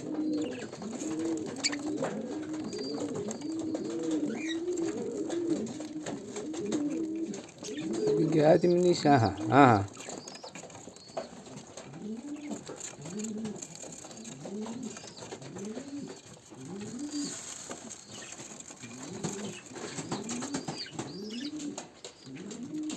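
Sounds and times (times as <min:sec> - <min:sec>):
bird cooing: 0:00.0 - 0:22.9.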